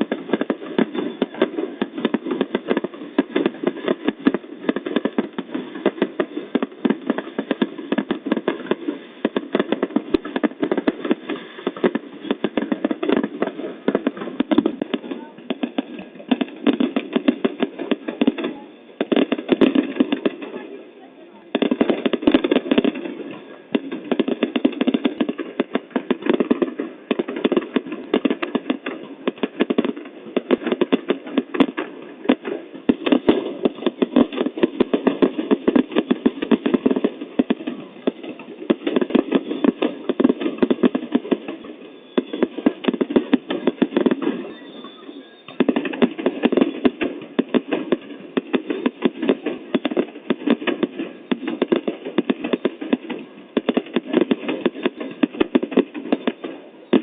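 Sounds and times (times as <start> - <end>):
fireworks crackling: 0.0 - 57.0.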